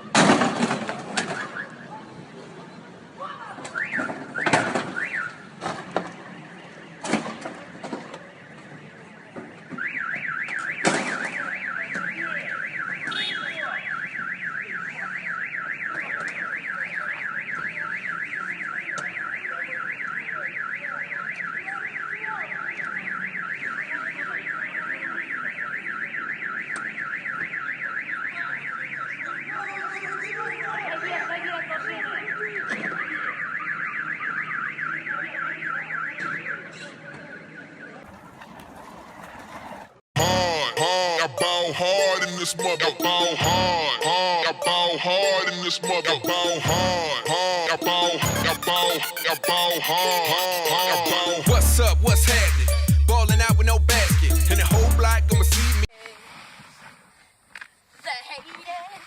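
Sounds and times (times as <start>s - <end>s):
car alarm siren warbling: 9.8s - 36.7s, 37.3s - 55.8s.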